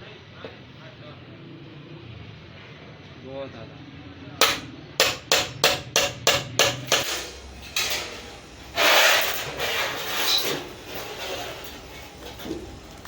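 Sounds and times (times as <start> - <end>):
hammer blows: 4.4 - 9.8.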